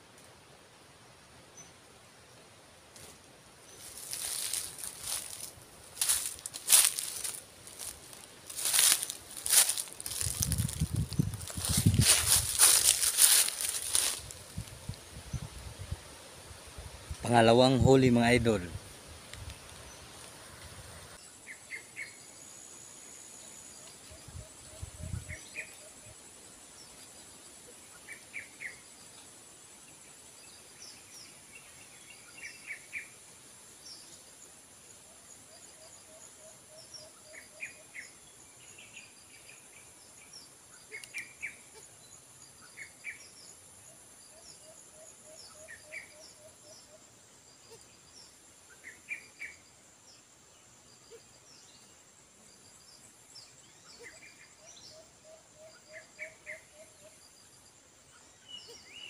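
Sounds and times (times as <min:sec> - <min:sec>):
high insect buzz: 0:03.0 - 0:17.2
small birds chirping: 0:03.7 - 0:16.0, 0:36.8 - 0:43.6, 0:45.4 - 0:59.0.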